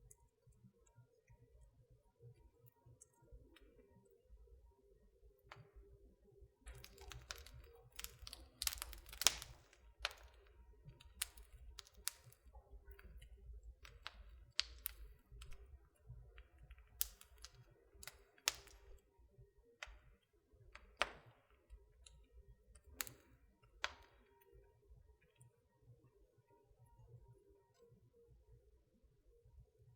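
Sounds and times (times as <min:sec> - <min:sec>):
wood fire popping and snapping: 0:06.7 - 0:19.1, 0:19.8 - 0:24.4.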